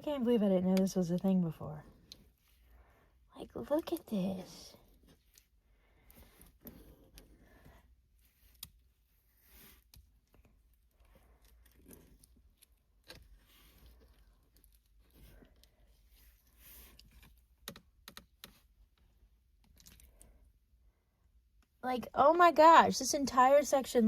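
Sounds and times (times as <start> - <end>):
small clicks: 16.9 - 20.4.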